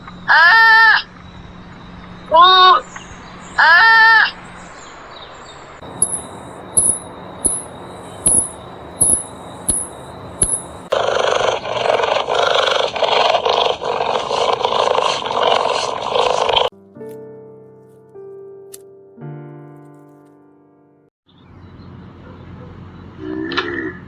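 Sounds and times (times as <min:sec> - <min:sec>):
short high chirps: 0:05.9 - 0:10.9.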